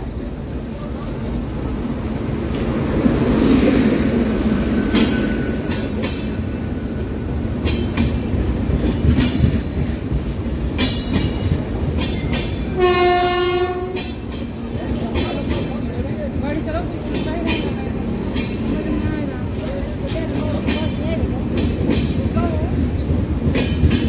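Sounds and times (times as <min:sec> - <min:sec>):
train rumble: 0:00.0 - 0:24.0
wheels clacking over rail joints: 0:07.4 - 0:24.0.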